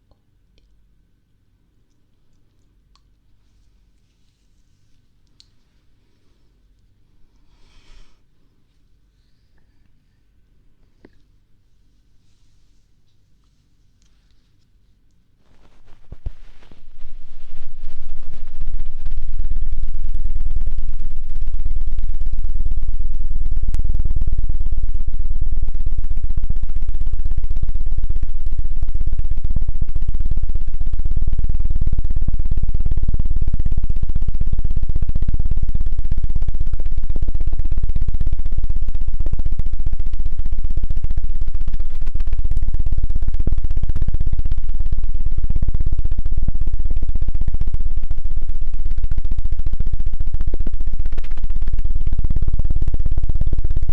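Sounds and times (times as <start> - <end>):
fluttering and rubbing at microphone: 3.4 - 5.9, 11.7 - 24.4, 31.2 - 53.9.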